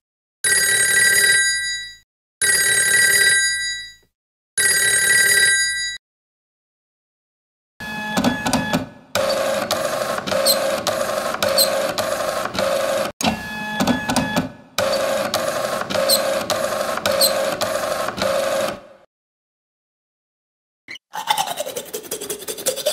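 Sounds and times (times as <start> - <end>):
machine mechanical clatter: 13.8 - 18.9.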